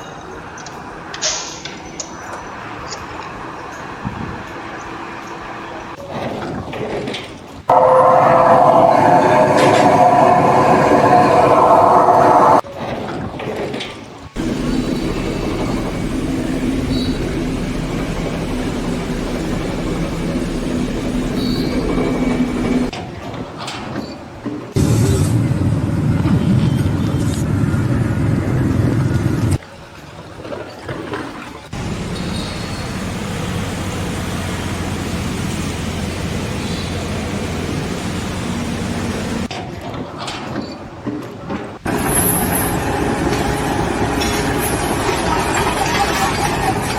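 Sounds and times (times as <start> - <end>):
large engine rumbling: 7.7 - 12.6, 14.4 - 22.9, 24.8 - 29.6, 31.8 - 39.5, 41.9 - 46.9
steady mechanical drone: 7.7 - 12.6, 14.4 - 22.9, 24.8 - 29.6, 31.8 - 39.5, 41.9 - 46.9.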